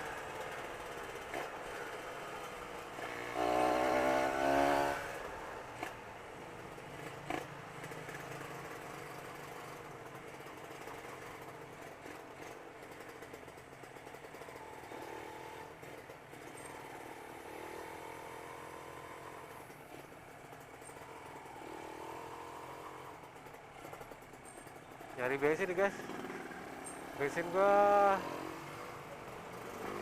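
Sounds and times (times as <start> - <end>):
road noise: 0.0 - 30.0.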